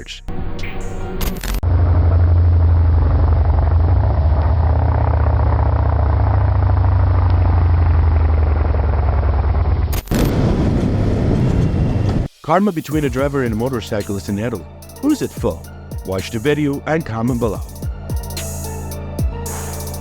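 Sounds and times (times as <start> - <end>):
vehicle rumble under way: 1.6 - 12.3.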